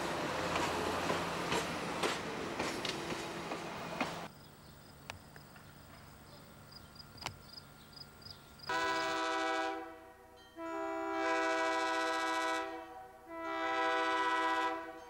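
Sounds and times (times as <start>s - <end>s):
wheels clicking over rail joints: 0.0s - 4.3s
rail car rumbling along track: 0.0s - 15.0s.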